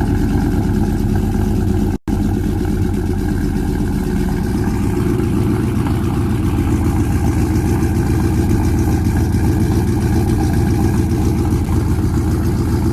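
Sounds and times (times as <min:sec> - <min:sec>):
engine idling: 0:00.0 - 0:12.9.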